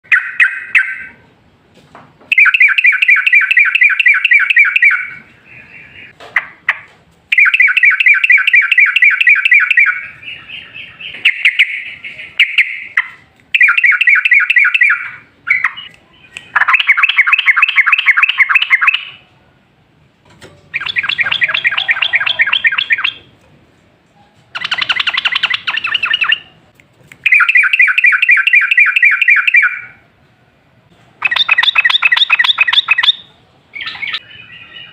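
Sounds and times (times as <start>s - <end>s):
bulbul chattering song: 2.3s - 19.2s, 20.7s - 23.4s, 24.6s - 30.0s, 31.2s - 34.9s.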